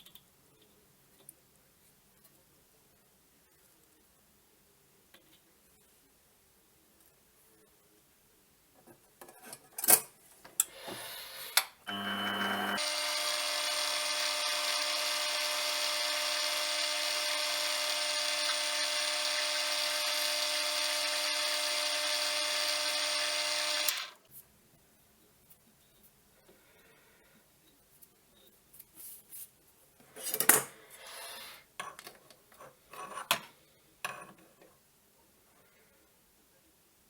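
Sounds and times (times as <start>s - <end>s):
lathe motor whining: 11.9s - 24.2s.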